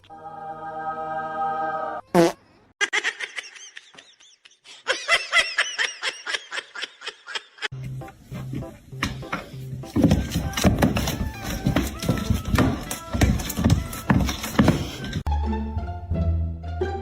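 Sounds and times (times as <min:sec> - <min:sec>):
high-pitched laughter: 0:02.8 - 0:07.7.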